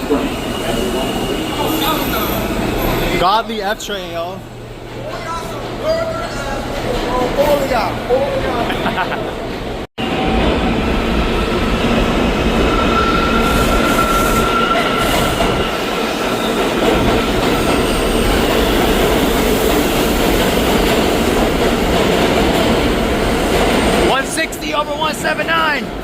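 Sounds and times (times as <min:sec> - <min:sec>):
subway train wheels on rails: 0:00.0 - 0:26.0.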